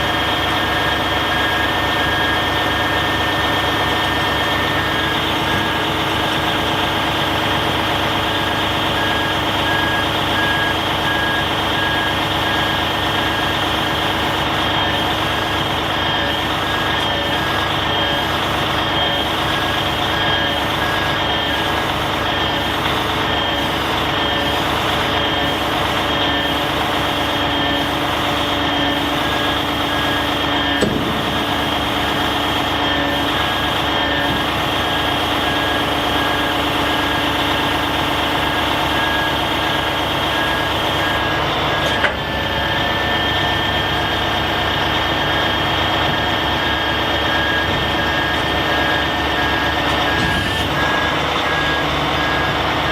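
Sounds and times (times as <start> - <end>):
electronic warning alarm beeping: 0.0 - 52.9
truck engine running: 0.0 - 52.9.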